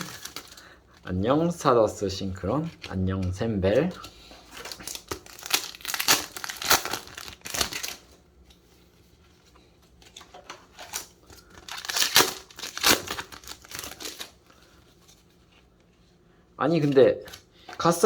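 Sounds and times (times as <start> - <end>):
wrappers and cards crinkling: 0.0 - 1.6, 2.3 - 8.2, 9.1 - 15.6.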